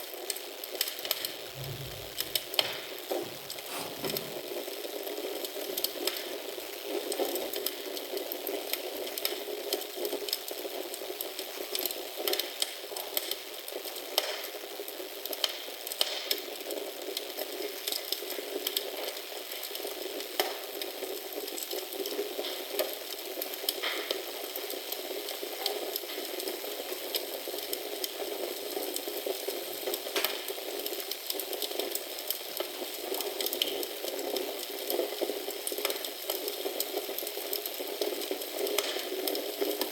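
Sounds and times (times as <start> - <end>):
wood fire crackling: 0.4 - 14.0, 17.1 - 39.9.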